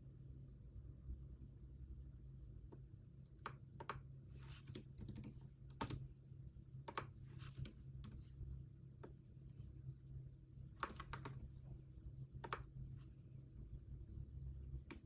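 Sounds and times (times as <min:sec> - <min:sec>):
low steady hum: 0:00.0 - 0:15.0
computer keyboard typing: 0:03.8 - 0:06.0, 0:06.9 - 0:08.3, 0:10.8 - 0:11.5.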